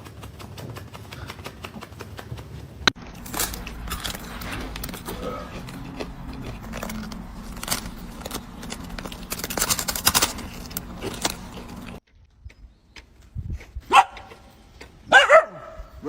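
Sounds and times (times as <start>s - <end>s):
steady low hum: 2.9s - 12.0s
metallic jingling and clicking: 3.0s - 12.0s.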